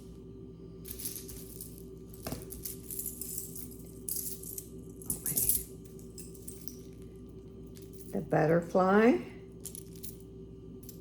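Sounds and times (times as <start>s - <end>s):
faint steady hum: 0.0s - 11.0s
bead bracelets clinking: 0.8s - 8.2s, 9.6s - 11.0s.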